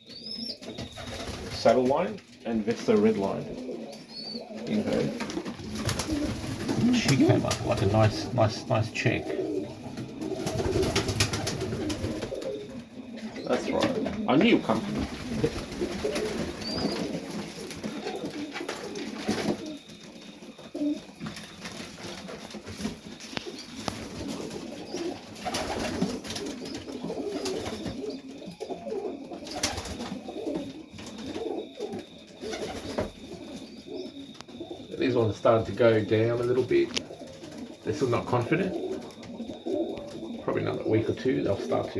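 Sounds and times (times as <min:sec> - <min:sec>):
pigeons cooing: 0:00.0 - 0:41.9
knocks from birds moving: 0:04.6 - 0:08.2, 0:09.6 - 0:28.2.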